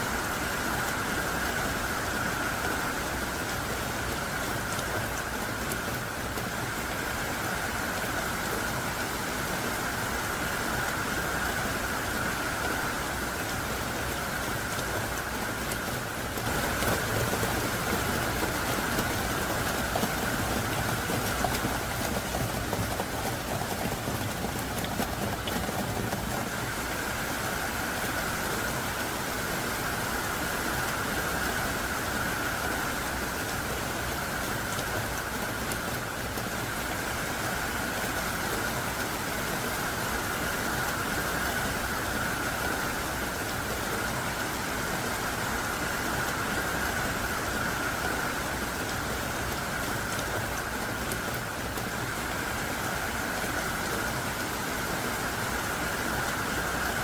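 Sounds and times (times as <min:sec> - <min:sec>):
heavy rain downpour: 0:00.0 - 0:57.0.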